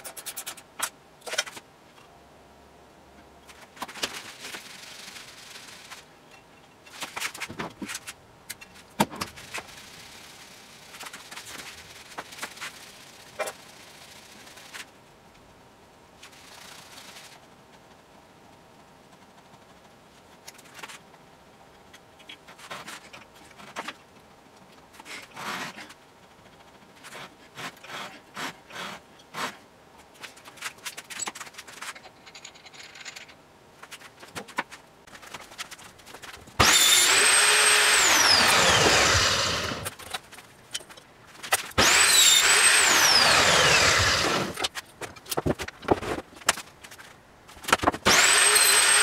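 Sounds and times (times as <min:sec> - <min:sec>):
power tool motor whining: 0:36.6 - 0:39.9, 0:41.8 - 0:44.6, 0:48.0 - 0:49.0.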